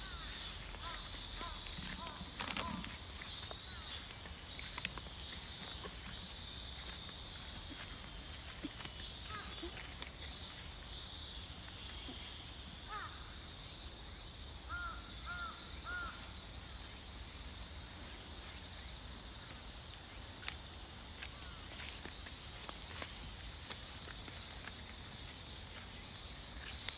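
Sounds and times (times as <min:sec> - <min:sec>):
crow cawing: 0:00.0 - 0:03.0, 0:03.7 - 0:04.0, 0:09.2 - 0:09.9, 0:12.9 - 0:13.3, 0:14.7 - 0:16.2.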